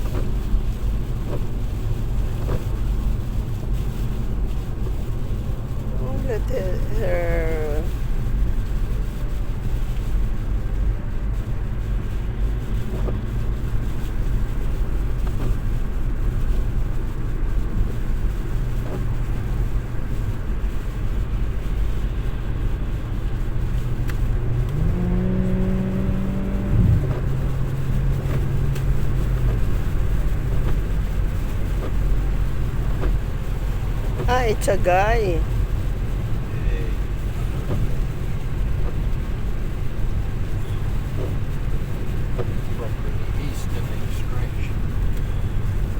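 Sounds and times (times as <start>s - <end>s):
car engine and tyre rumble: 0.0s - 45.9s
pitched hum: 24.3s - 29.4s.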